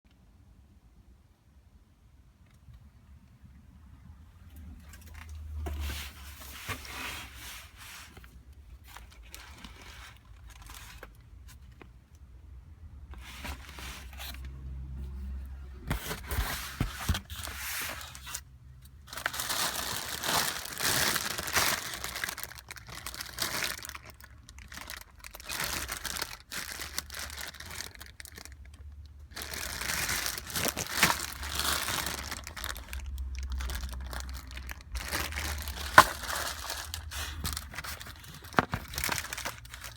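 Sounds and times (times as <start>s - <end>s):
packaging crinkling and rustling: 4.8s - 11.9s, 13.1s - 39.9s
packaging tearing: 19.1s - 28.6s, 29.3s - 39.9s.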